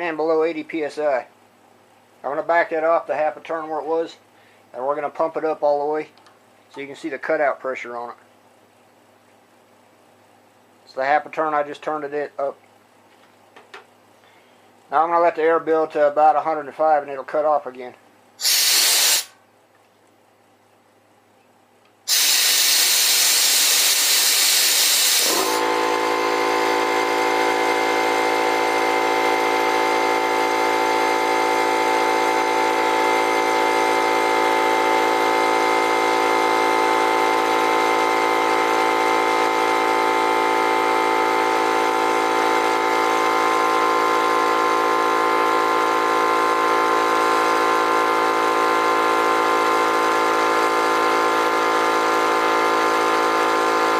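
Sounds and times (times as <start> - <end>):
air compressor motor running: 18.4 - 19.4, 22.1 - 53.9
loud hiss of escaping air: 18.4 - 19.4, 22.1 - 25.6.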